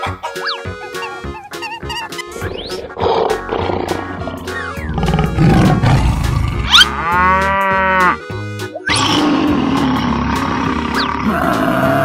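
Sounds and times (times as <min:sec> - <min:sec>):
cartoon background music: 0:00.0 - 0:12.0
big cat growling roar: 0:02.6 - 0:06.7, 0:08.9 - 0:12.0.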